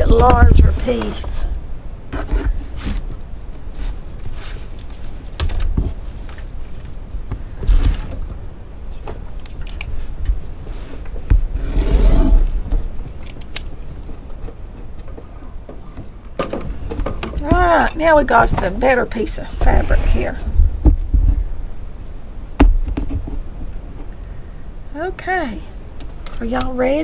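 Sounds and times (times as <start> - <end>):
knocks and bumps: 0.0 - 1.5, 14.8 - 19.0.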